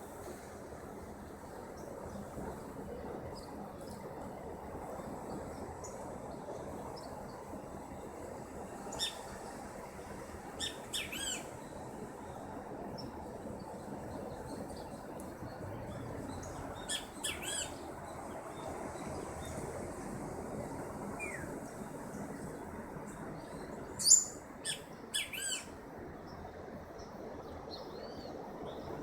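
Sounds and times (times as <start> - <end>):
steady outdoor background hiss: 0.0 - 29.0
birds giving short high calls: 24.0 - 25.7.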